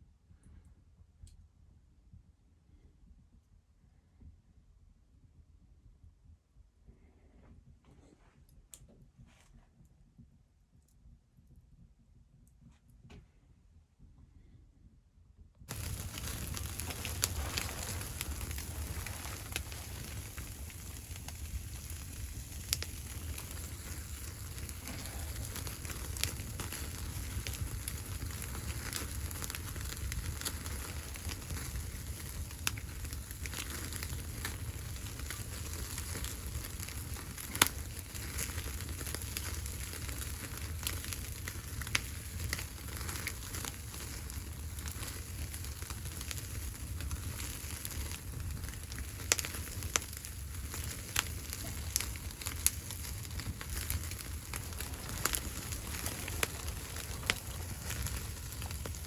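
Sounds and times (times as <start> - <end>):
low rumble of fire: 0.0 - 59.0
sharp pops of fire: 15.7 - 59.0
wood fire crackling: 15.7 - 59.0.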